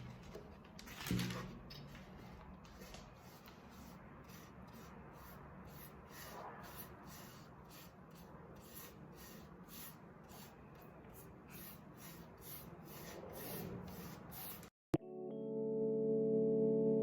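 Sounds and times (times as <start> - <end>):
rubbing strokes on a surface: 2.1 - 14.7
piano music: 14.9 - 17.0.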